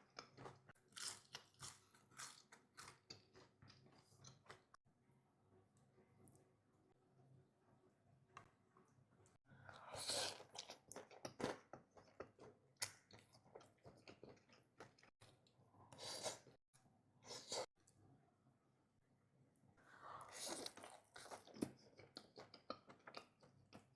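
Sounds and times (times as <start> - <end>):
person chewing crunchy food: 0.0 - 4.7, 9.7 - 15.1, 20.2 - 23.9.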